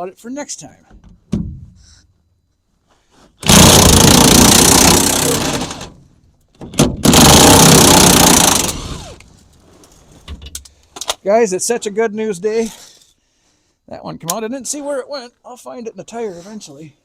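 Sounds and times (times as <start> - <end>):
impact wrench hammering: 3.4 - 5.9, 6.8 - 8.8.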